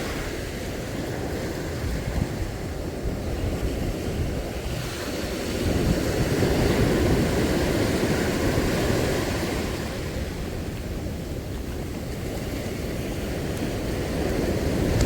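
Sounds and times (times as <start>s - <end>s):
sea surf washing ashore: 0.0s - 15.0s
wind buffeting microphone: 0.0s - 15.0s.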